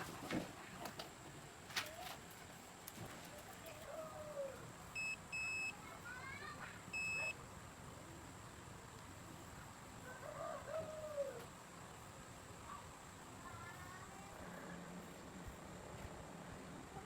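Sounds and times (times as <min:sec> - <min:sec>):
short electronic beeps: 0:05.0 - 0:05.7, 0:07.0 - 0:07.3.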